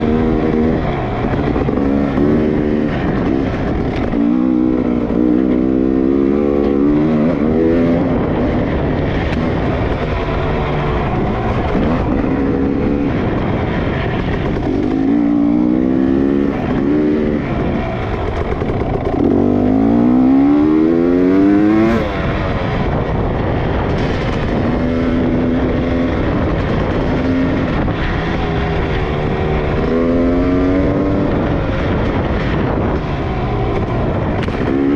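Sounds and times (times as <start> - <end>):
dirt bike engine revving: 0.0 - 34.9
steady rushing noise: 0.0 - 34.9.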